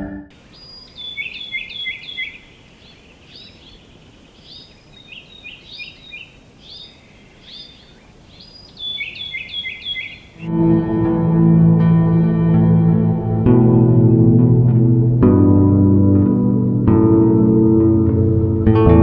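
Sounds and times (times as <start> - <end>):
songbird chirping: 0.0 - 10.6
faint background hiss: 0.3 - 10.5.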